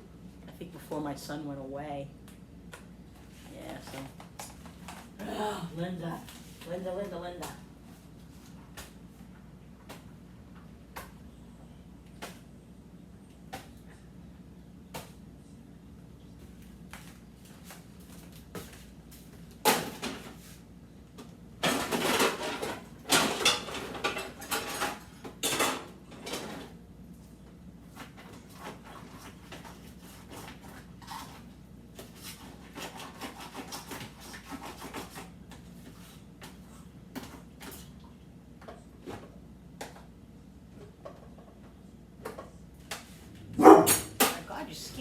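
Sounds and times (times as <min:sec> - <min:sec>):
containers clattering and rustling: 0:21.6 - 0:26.7.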